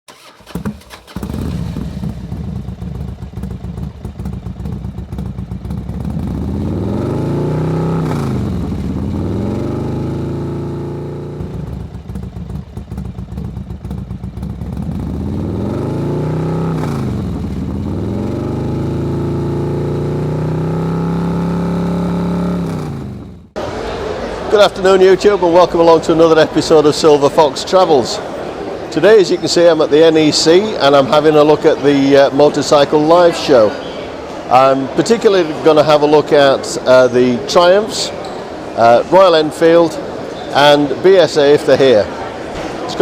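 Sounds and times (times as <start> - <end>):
motorcycle engine revving: 0.1 - 23.6.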